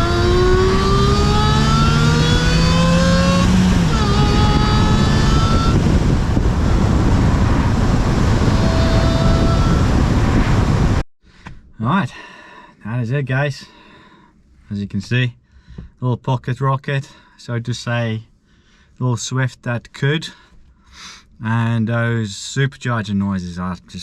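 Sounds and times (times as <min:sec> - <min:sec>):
car engine accelerating: 0:00.0 - 0:10.9
supercharger whine: 0:00.0 - 0:11.0.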